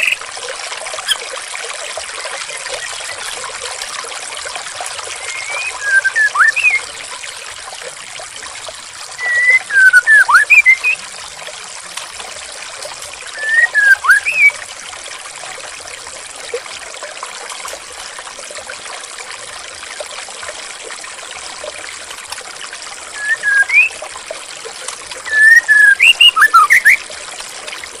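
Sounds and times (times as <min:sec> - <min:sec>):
songbird whistled chirps: 0:00.0 - 0:00.2, 0:05.2 - 0:07.0, 0:09.2 - 0:11.0, 0:13.4 - 0:14.6, 0:23.1 - 0:24.0, 0:25.2 - 0:27.0
trickling water: 0:00.0 - 0:28.0.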